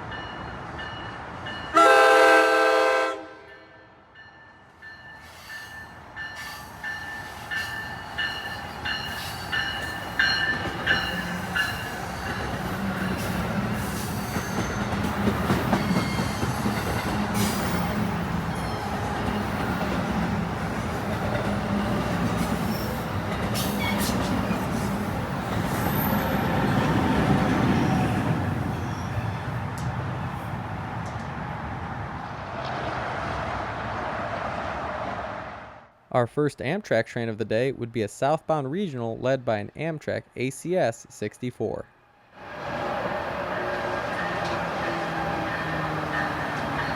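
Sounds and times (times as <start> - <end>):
train rumble and wheel clatter: 0.0 - 3.5, 4.1 - 35.9, 42.4 - 46.9.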